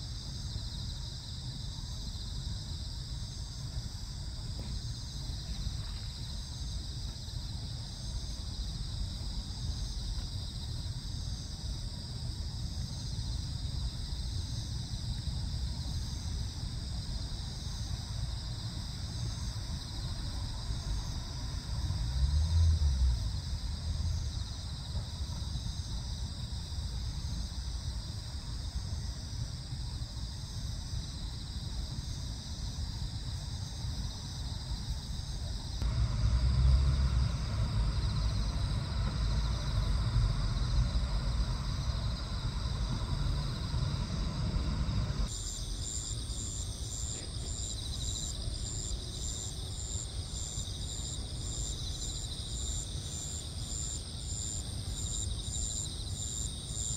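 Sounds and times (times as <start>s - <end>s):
insects chirping: 0.0s - 56.9s
low rumble: 35.8s - 45.3s.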